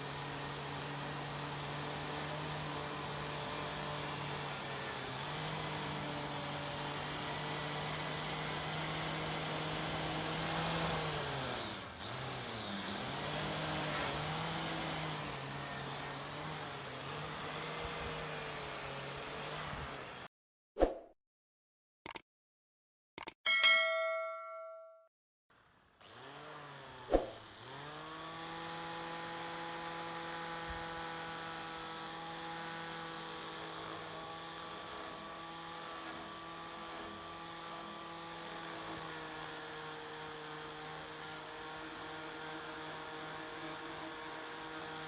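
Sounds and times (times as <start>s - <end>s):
power tool motor running: 0.0s - 20.3s, 25.6s - 45.0s
sharp metallic clicks: 22.0s - 22.3s, 23.2s - 23.6s.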